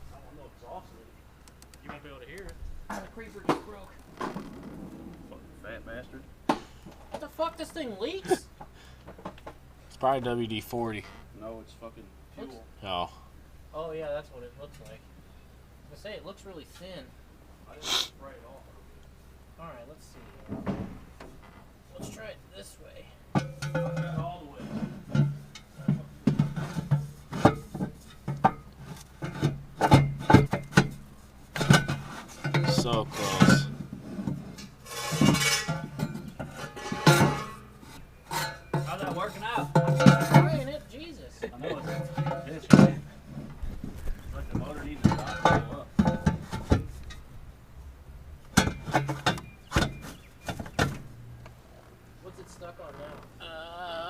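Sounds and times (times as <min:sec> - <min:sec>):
steady low hum: 0:00.0 - 0:54.0
exhaust pipe knocking and scraping metal: 0:23.0 - 0:47.4, 0:48.4 - 0:51.7.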